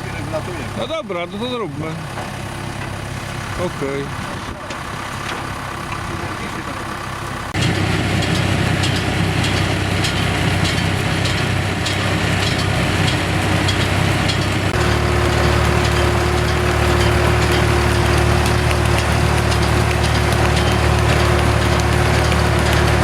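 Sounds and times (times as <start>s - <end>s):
tractor engine running: 0.0s - 23.0s
baler regular ticking: 11.9s - 23.0s.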